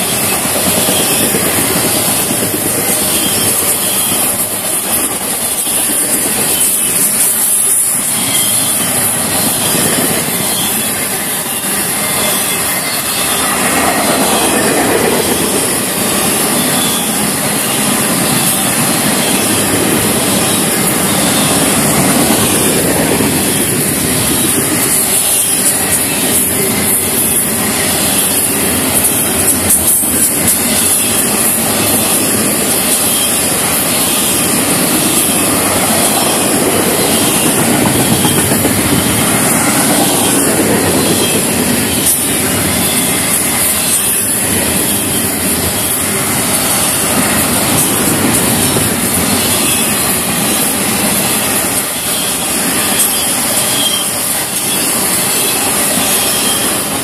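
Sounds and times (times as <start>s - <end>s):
steel wheels on rail: 0.0s - 57.0s.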